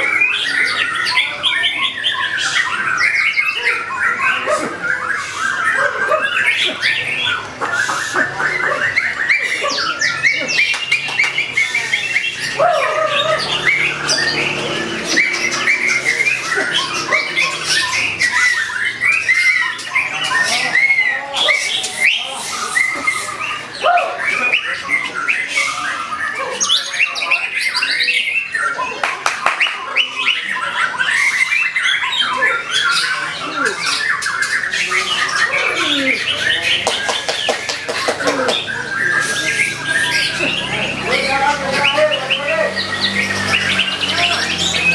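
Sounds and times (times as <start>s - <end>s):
harsh clicking bird chatter: 4.9s - 20.8s, 36.2s - 44.9s.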